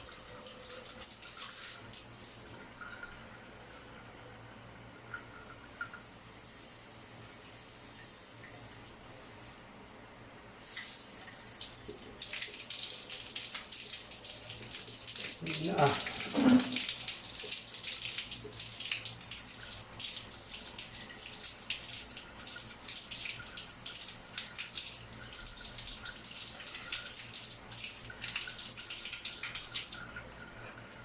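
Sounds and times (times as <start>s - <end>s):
shower water spraying: 0.0s - 4.0s, 10.6s - 30.0s.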